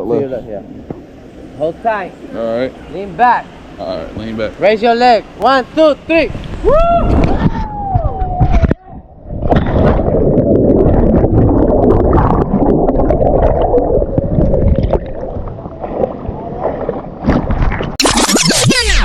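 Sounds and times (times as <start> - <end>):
water churning and splashing: 9.1 - 18.0.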